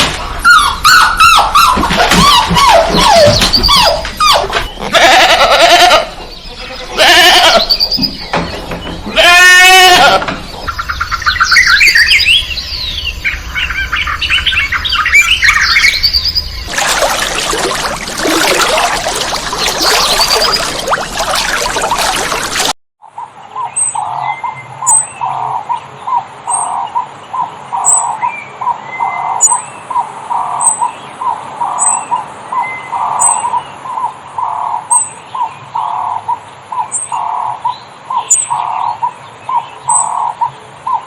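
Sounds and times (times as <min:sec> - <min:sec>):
wavering bleat-like calls: 0:04.8 - 0:07.7, 0:09.1 - 0:10.3.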